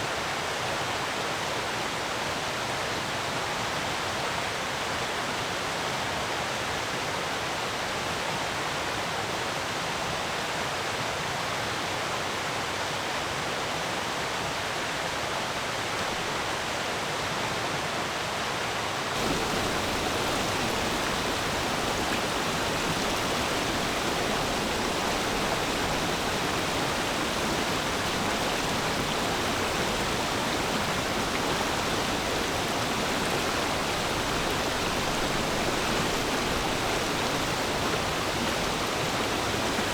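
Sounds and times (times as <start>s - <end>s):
stream flowing: 19.0s - 39.9s.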